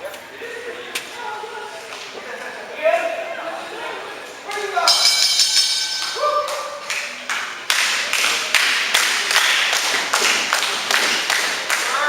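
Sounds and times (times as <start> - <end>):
crowd clapping in unison: 6.4 - 12.0.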